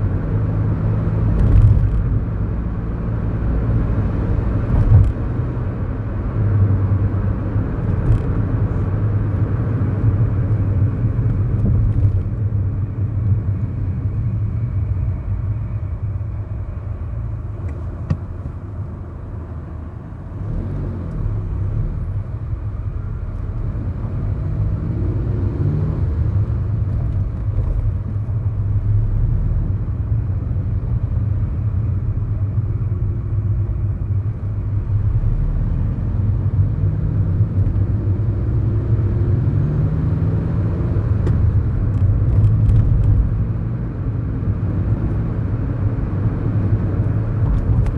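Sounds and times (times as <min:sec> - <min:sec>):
car engine from inside cabin: 0:00.0 - 0:47.9
tyres running on road: 0:07.9 - 0:28.7.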